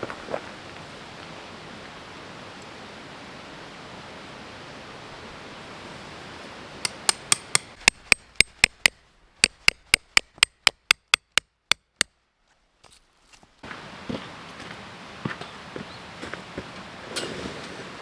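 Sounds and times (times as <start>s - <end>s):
hammer striking metal tent peg: 6.8s - 12.1s.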